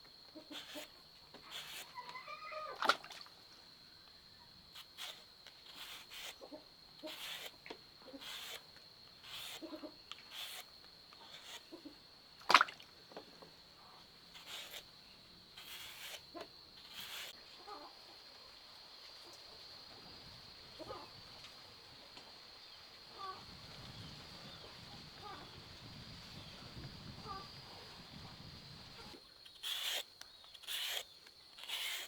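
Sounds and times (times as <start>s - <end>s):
high whining animal call: 1.5s - 2.8s.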